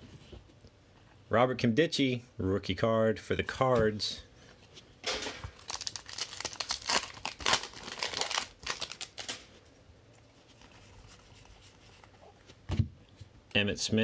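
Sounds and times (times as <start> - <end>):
plastic wrapper crinkling and tearing: 5.4 - 9.5.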